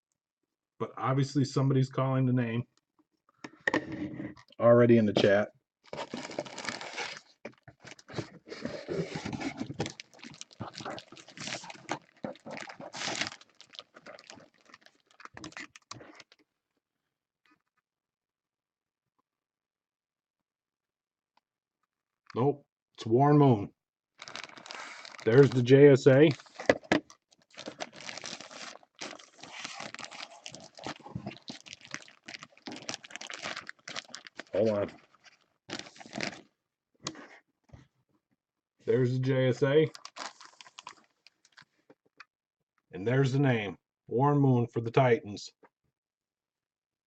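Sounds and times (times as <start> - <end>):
plastic packaging crinkling: 5.9 - 16.4, 24.2 - 36.4, 39.8 - 41.7.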